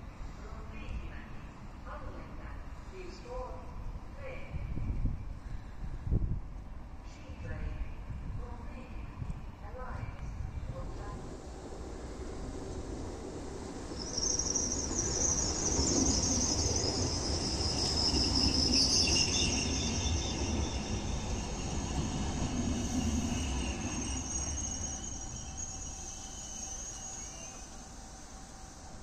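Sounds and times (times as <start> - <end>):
train low rumble: 0.0 - 26.1
train brakes squealing: 13.8 - 28.9.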